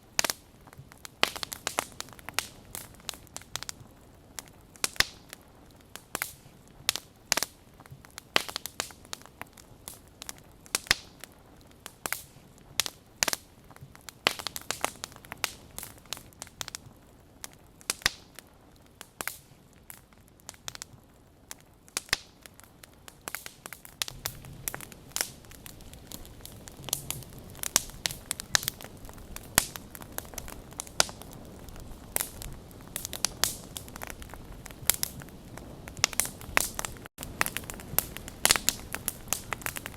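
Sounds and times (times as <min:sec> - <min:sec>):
faint hiss: 0:00.0 - 0:17.5
wood fire crackling: 0:00.0 - 0:39.9.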